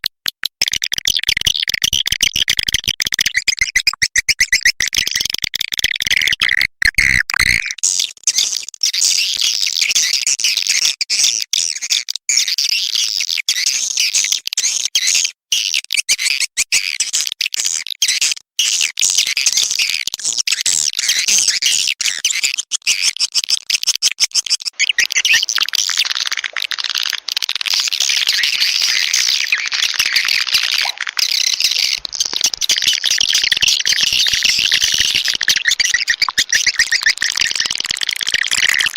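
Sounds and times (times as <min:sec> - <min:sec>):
swiftlets twittering: 0:24.8 - 0:38.9.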